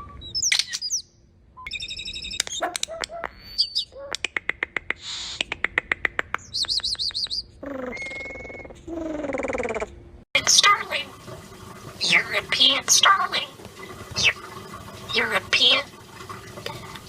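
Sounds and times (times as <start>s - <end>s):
starling singing whistles and clicks: 0.0s - 1.0s, 1.6s - 8.9s.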